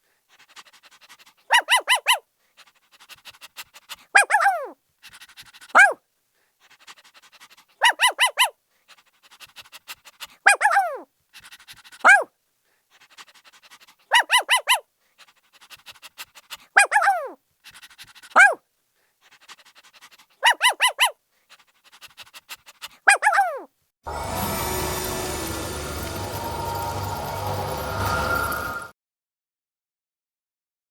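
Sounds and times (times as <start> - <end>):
puppy barking and yelping: 0.4 - 6.0, 6.6 - 12.3, 13.0 - 18.6, 19.2 - 23.7.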